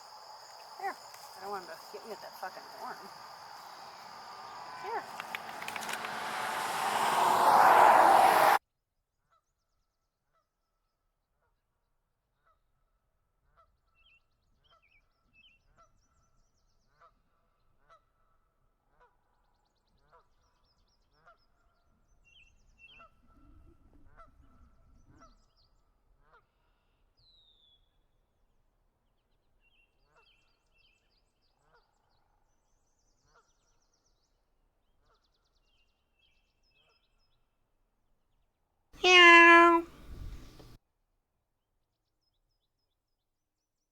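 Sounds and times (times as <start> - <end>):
short bird calls: 0.1 - 7.4, 39.0 - 40.8.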